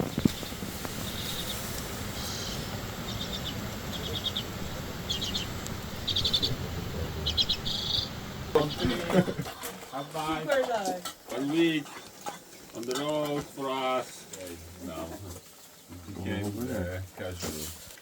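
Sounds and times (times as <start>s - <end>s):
small bird chirping: 0.0s - 9.0s
low steady rumble: 0.0s - 9.5s.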